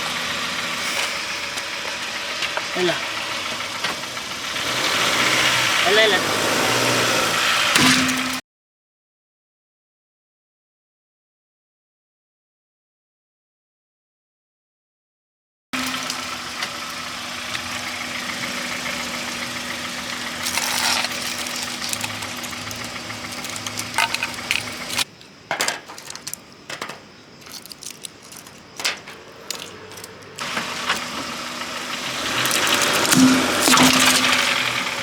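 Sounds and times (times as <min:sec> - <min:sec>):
car engine humming: 0:00.0 - 0:08.4, 0:15.8 - 0:35.0
clicks and cracks: 0:20.4 - 0:34.8.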